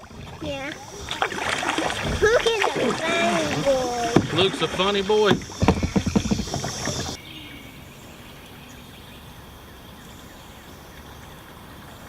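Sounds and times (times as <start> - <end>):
voices: 1.9 - 7.2
faint bird chirping: 5.5 - 12.0.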